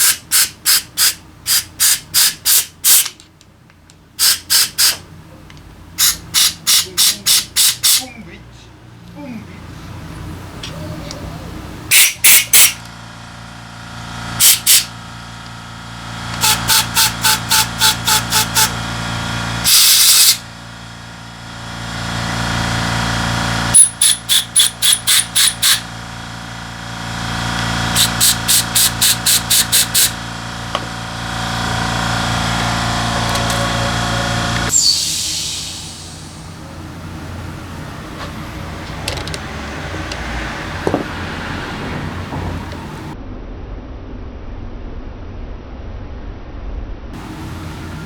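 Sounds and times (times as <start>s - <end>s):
spray can hissing blasts: 0.0s - 3.2s, 4.2s - 5.0s, 6.0s - 8.0s, 11.9s - 12.8s, 14.4s - 15.0s, 16.4s - 18.8s, 19.6s - 20.5s, 23.7s - 25.9s, 27.6s - 38.6s
steady low hum: 0.0s - 43.2s, 47.1s - 48.0s
thin high whistle: 34.7s - 36.2s.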